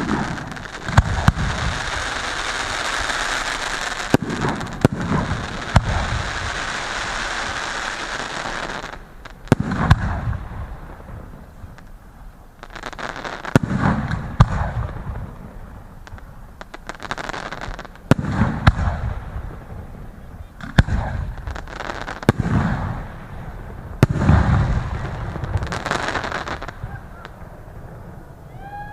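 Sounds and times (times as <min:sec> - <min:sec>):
fireworks bangs: 0:00.0 - 0:28.9
fireworks crackling: 0:00.0 - 0:28.9.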